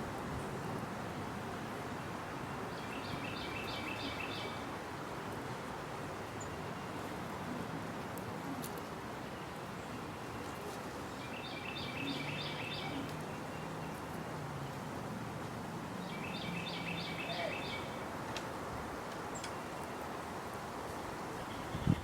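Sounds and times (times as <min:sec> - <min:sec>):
outdoor background hiss: 0:00.0 - 0:22.0
songbird singing: 0:02.5 - 0:04.7, 0:09.3 - 0:14.1, 0:16.0 - 0:18.1.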